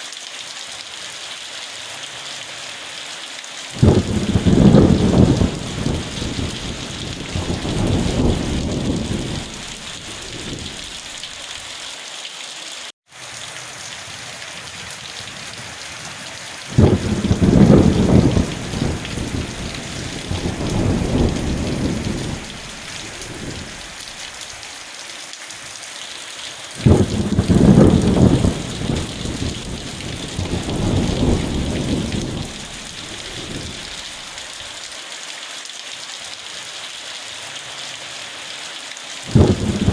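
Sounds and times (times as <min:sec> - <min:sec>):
heavy rain: 0:00.0 - 0:39.9
thunder rumbling: 0:03.8 - 0:11.3, 0:14.6 - 0:24.1, 0:26.8 - 0:34.4, 0:39.3 - 0:39.9.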